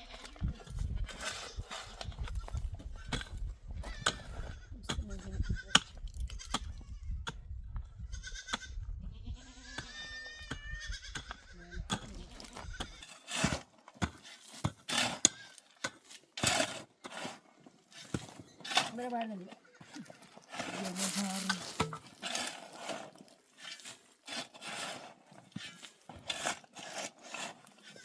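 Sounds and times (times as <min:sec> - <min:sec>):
goat bleating: 0:08.1 - 0:13.2, 0:19.6 - 0:21.6.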